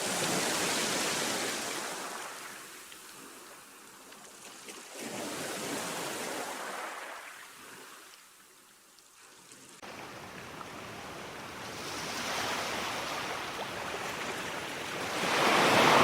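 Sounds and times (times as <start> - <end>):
sea waves washing onto shore: 0.0 - 3.6, 9.8 - 16.0.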